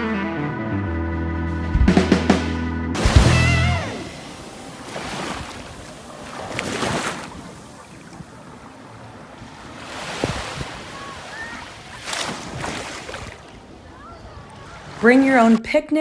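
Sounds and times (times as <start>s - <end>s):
sea waves washing onto beach: 3.0s - 15.6s.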